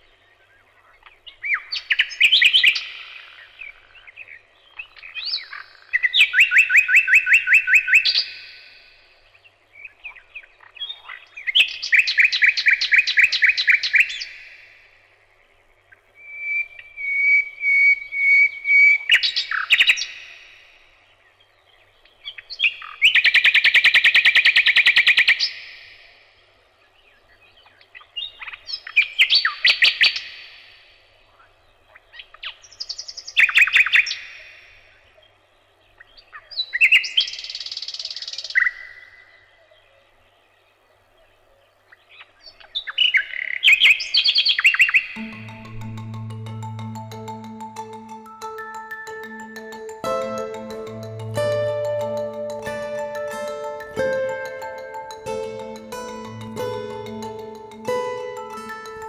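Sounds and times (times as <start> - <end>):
songbird singing trills: 0.0 - 26.2, 26.8 - 59.0.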